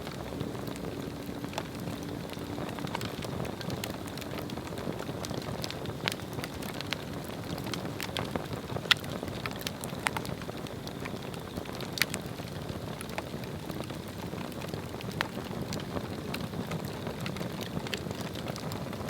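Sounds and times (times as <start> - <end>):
fire crackles and pops: 0.0 - 19.0
fire rushing flame: 0.0 - 19.0.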